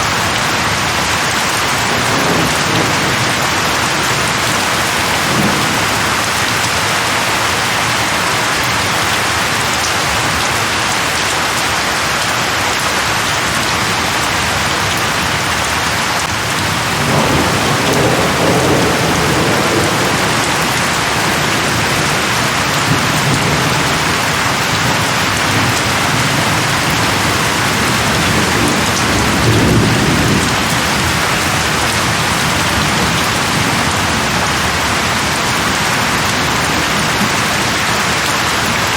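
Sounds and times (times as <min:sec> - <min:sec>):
heavy rain falling: 0:00.0 - 0:38.9
thunder rumbling: 0:01.2 - 0:09.2, 0:16.2 - 0:37.9.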